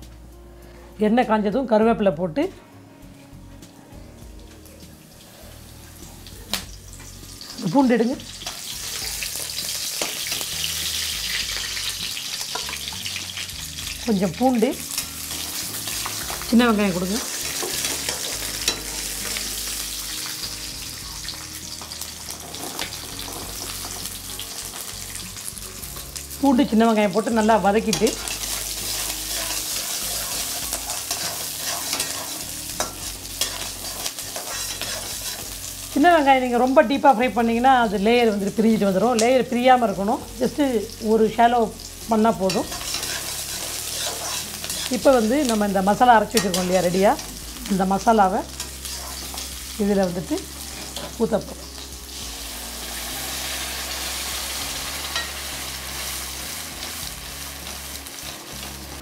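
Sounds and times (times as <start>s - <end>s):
aromatics sizzling in hot oil: 3.7s - 59.0s
ladle scraping a pan: 28.1s - 35.5s, 42.7s - 45.0s.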